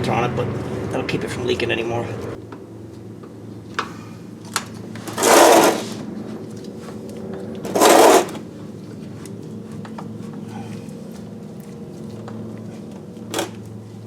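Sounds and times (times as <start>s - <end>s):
steady low hum: 0.0s - 14.0s
whirring rattling mechanical bursts: 5.0s - 6.0s, 7.7s - 8.4s.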